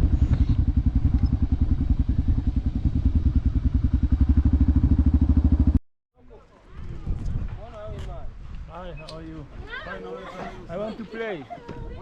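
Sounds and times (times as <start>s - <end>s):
motorcycle engine running: 0.0s - 5.8s.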